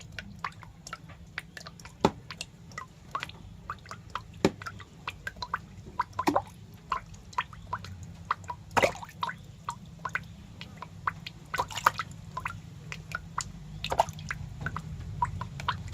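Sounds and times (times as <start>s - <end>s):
low steady hum: 0.0s - 15.9s
snail feeding wet clicks: 0.0s - 15.9s.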